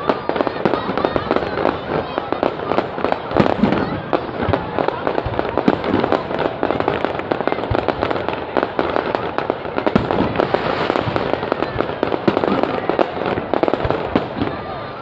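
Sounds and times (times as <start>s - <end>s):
fireworks crackling and banging: 0.0s - 15.0s.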